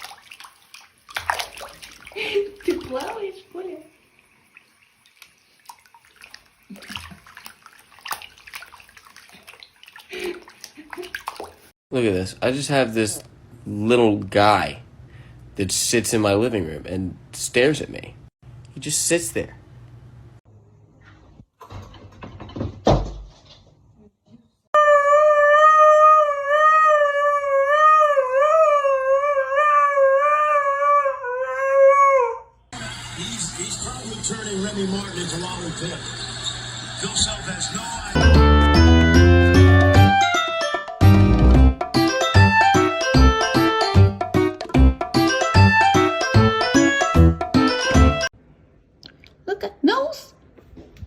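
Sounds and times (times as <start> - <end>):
water splashing in a bathtub: 0.0 - 11.8
dog howling: 24.8 - 32.5.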